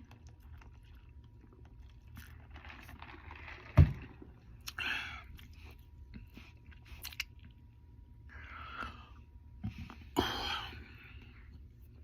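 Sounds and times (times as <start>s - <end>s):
person chewing food: 0.0s - 3.6s, 4.5s - 7.8s.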